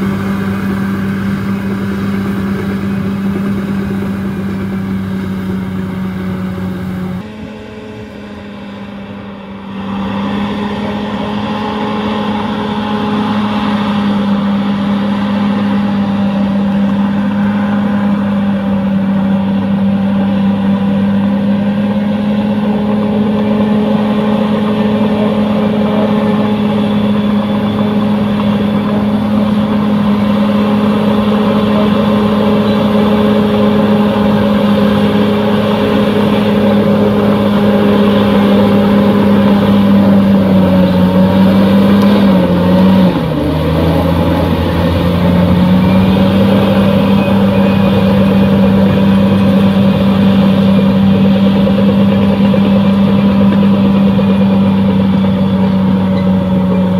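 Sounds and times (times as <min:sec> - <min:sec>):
bulldozer diesel engine running: 0:00.0 - 0:56.9.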